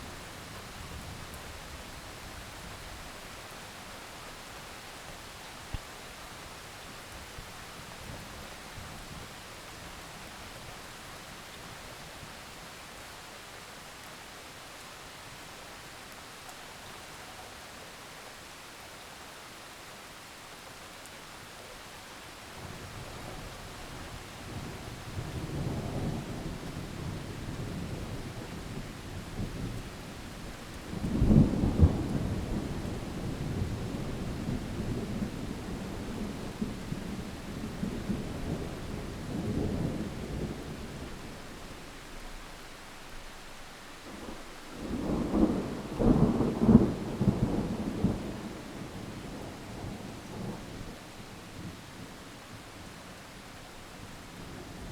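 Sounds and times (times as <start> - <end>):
heavy rain hissing: 22.5 - 54.9
thunder rumbling and cracking: 44.2 - 48.6.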